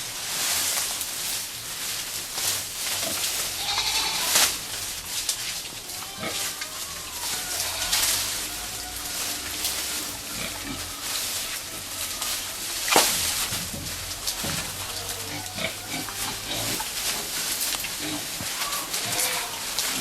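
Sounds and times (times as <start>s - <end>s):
grass stalks rustling and crunching: 0.0s - 20.0s
pigs grunting: 6.0s - 20.0s.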